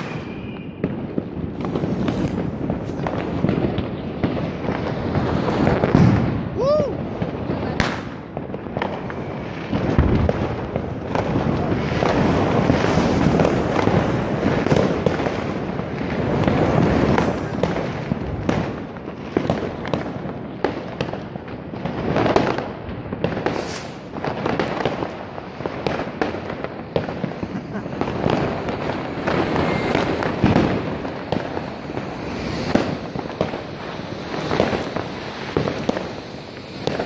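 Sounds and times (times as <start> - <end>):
fireworks crackling and popping: 0.0 - 37.0.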